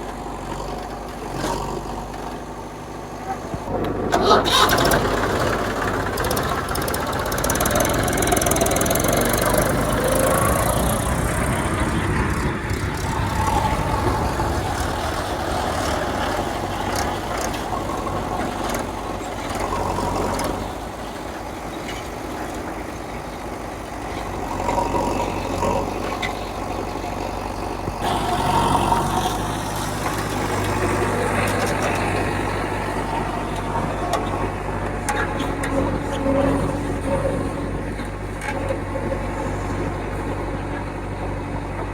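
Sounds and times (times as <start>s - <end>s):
diesel engines running: 0.0s - 41.9s
steady low hum: 8.8s - 19.5s.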